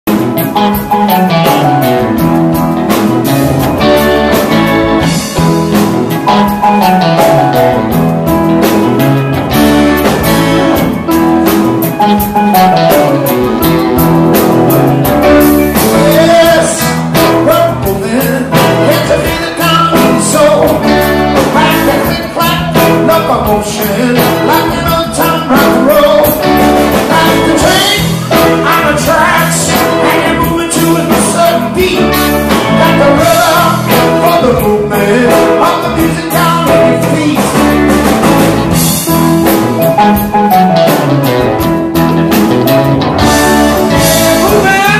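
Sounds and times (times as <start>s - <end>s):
bass line: 0.1s - 44.9s
live blues-rock band: 0.1s - 44.9s.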